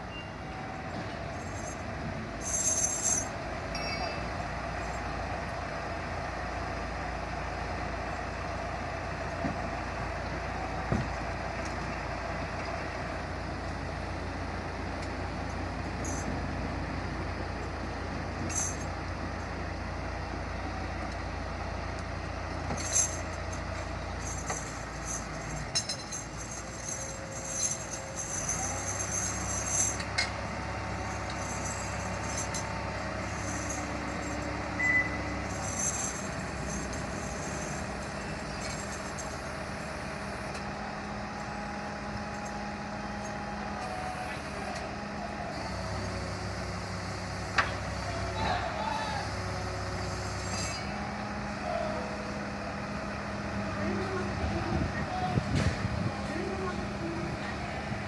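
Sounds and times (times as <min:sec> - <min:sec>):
large vehicle engine rumbling: 0:00.0 - 0:58.0
brief high squeaks: 0:34.8 - 0:35.3.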